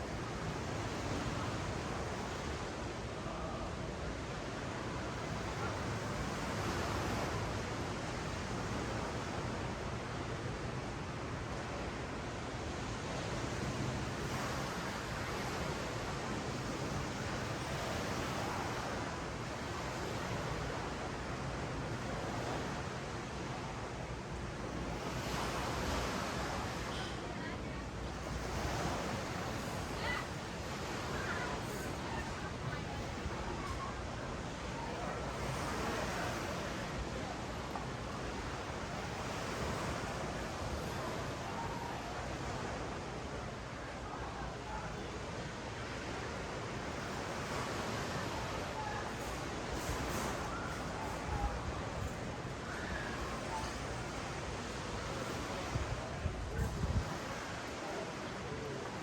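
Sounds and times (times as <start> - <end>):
ocean waves on sandy beach: 0.0 - 59.0
wind on microphone: 54.9 - 57.8.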